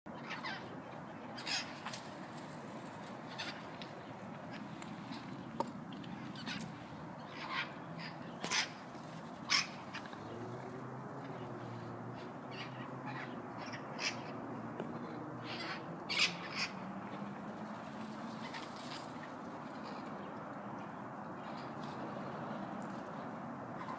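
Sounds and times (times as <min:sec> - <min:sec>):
parrots squawking: 0:09.5 - 0:10.1, 0:15.4 - 0:16.8.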